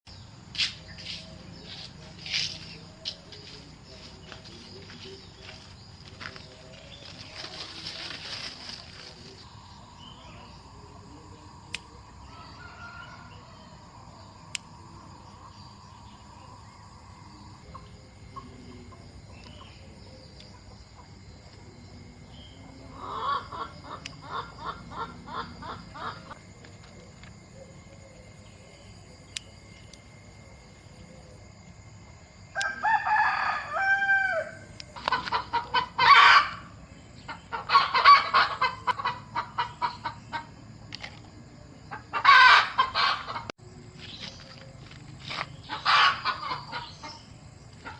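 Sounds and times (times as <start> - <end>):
chickens clucking: 1.0 - 9.5, 17.6 - 21.2, 22.6 - 27.7, 34.8 - 43.5, 45.2 - 47.9
rooster crowing: 12.2 - 14.0, 32.5 - 34.8, 35.8 - 36.8.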